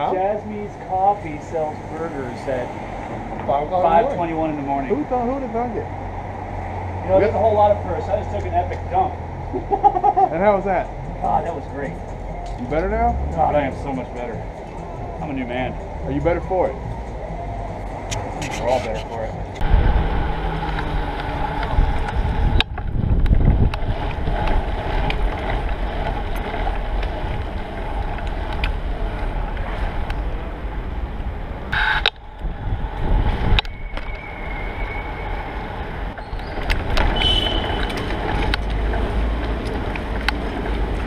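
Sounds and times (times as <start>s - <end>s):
road noise: 0.0s - 41.0s
wind buffeting microphone: 19.3s - 41.0s.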